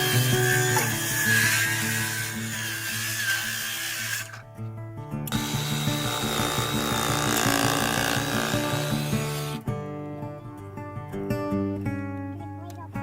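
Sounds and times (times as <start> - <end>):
electric drill whining: 0.0 - 4.4, 5.3 - 9.6
background music: 0.0 - 13.0.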